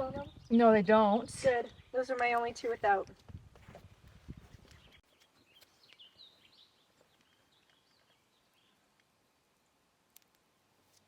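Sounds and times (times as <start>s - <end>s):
birds chirping: 0.0s - 3.0s, 4.3s - 9.4s.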